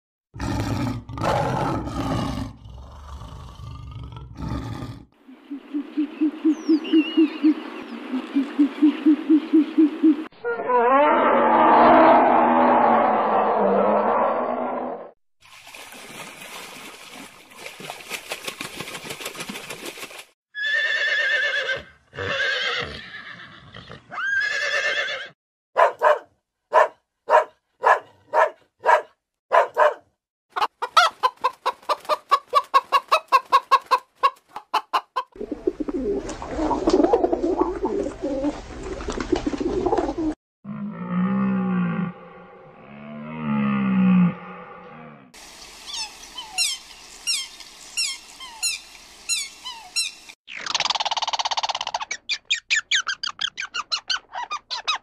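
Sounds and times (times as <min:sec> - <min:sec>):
dog barking: 0:25.8 - 0:30.1.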